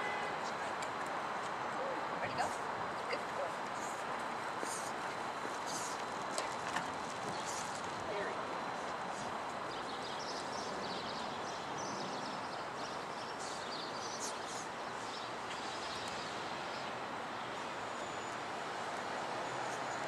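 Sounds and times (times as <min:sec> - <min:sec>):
outdoor background noise: 0:00.0 - 0:20.0
small birds chirping: 0:09.6 - 0:18.3.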